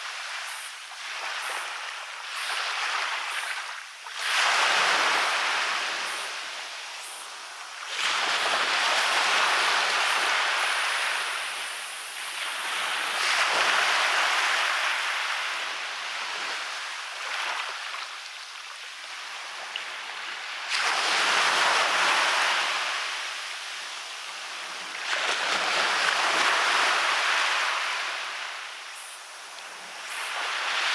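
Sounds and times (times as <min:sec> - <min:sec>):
sea waves breaking on beach: 0:00.0 - 0:18.2, 0:19.0 - 0:30.9.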